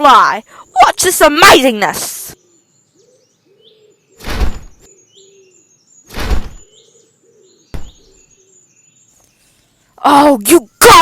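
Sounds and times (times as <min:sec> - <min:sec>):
faint birdsong: 0:00.0 - 0:11.0
whooshing wing-beats: 0:06.1 - 0:06.6.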